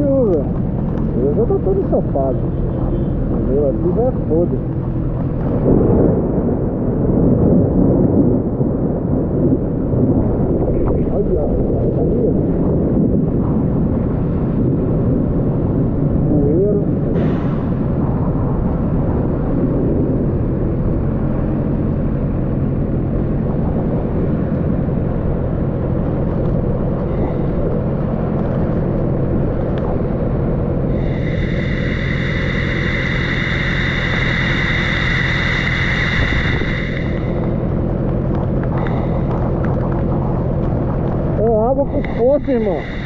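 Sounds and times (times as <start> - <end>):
motorcycle engine rumble: 0.0 - 9.0, 17.6 - 43.0
wind and water on microphone: 0.0 - 43.0
heavy rain: 23.3 - 43.0
high-pitched tone: 30.9 - 37.8, 41.8 - 43.0.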